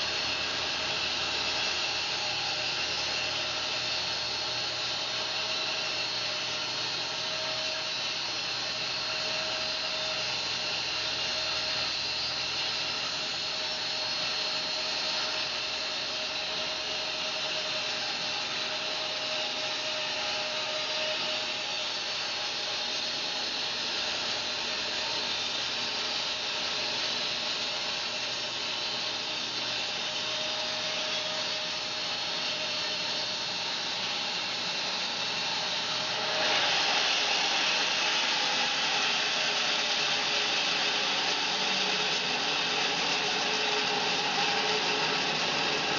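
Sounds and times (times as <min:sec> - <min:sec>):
bandsaw cutting log: 0:28.9 - 0:45.9.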